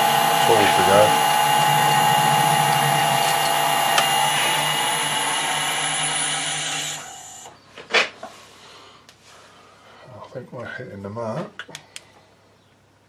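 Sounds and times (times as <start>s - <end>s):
metal lathe motor whining: 0.0s - 7.5s.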